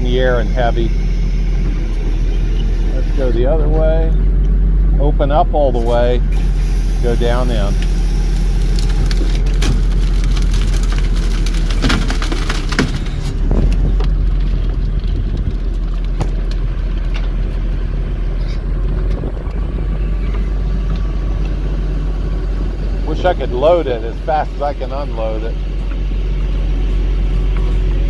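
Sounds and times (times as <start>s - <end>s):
truck diesel engine running: 0.0s - 28.0s
branches cracking and snapping: 7.6s - 22.5s.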